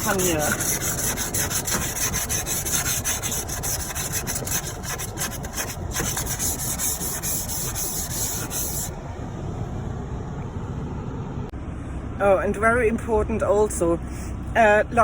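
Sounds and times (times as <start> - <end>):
ice scraper scraping frost off glass: 0.0 - 8.9.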